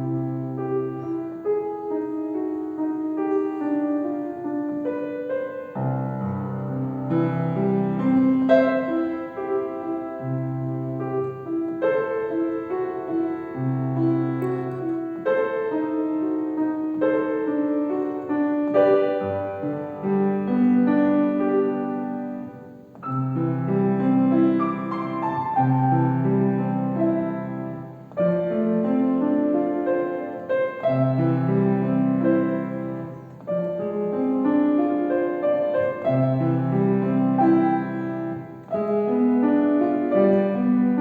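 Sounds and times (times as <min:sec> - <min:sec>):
solo piano melody: 0:00.0 - 0:41.0.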